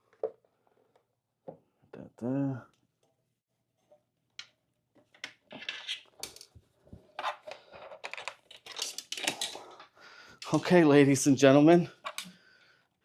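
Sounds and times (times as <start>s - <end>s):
hands rustling and scraping parts: 3.7s - 10.8s.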